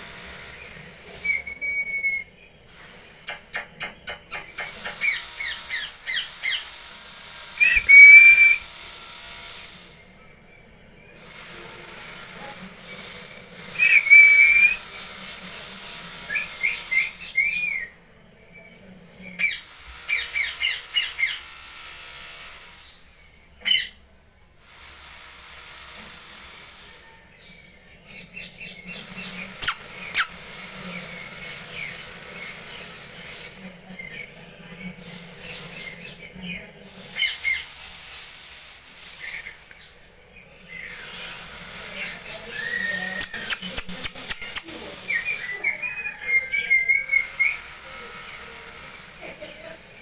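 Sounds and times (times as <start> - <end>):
parrots chirping and squawking: 29.6 - 30.5, 43.2 - 44.7.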